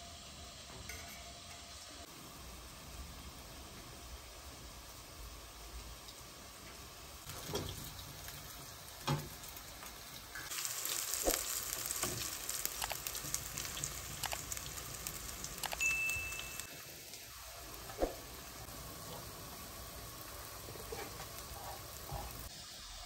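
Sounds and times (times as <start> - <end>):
patties sizzling in oil: 0.0 - 23.0
short high beep: 15.8 - 16.7.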